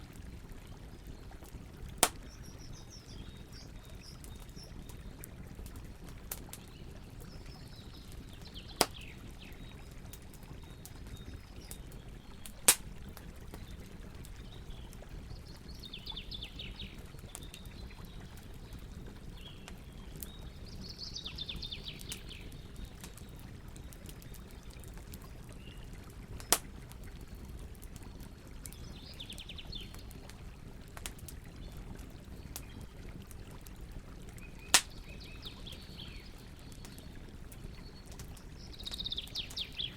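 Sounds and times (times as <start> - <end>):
campfire crackling: 0.0 - 39.9
loud fire pops: 2.0 - 2.4
songbirds trilling: 2.0 - 5.2, 14.4 - 23.4, 34.4 - 39.9.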